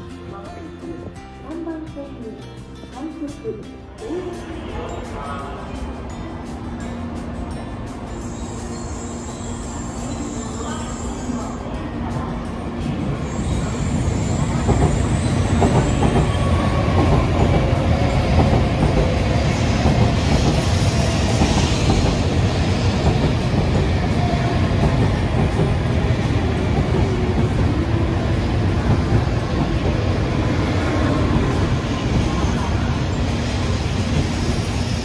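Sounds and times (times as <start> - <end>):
train wheels rumbling on rail: 5.4 - 35.0.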